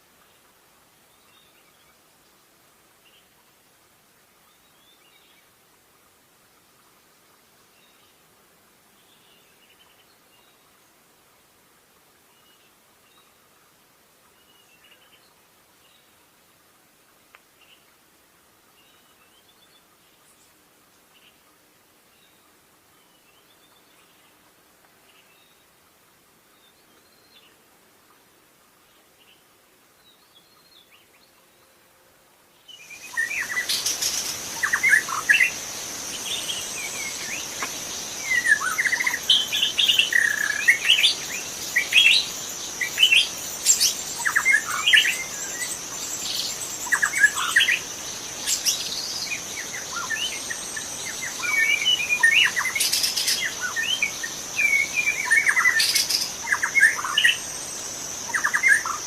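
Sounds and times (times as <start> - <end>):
high-pitched insect drone: 32.9 - 59.0
bird singing whistled phrases: 38.2 - 47.8.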